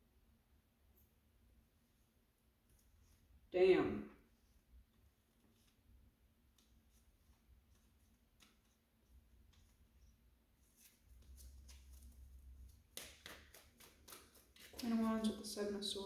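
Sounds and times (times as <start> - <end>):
cards clicking and tapping: 12.8 - 14.9.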